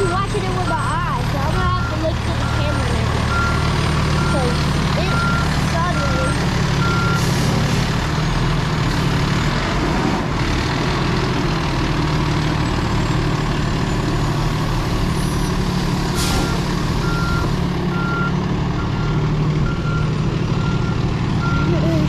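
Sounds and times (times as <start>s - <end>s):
reversing beeper: 0.0s - 7.4s, 16.2s - 22.0s
diesel truck engine idling: 0.0s - 22.0s.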